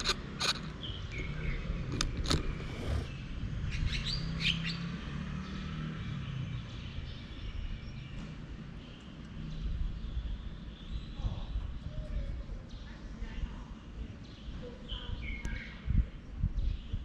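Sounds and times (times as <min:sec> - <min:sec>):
low steady rumble: 0:00.0 - 0:03.7
birds chirping: 0:00.0 - 0:11.8.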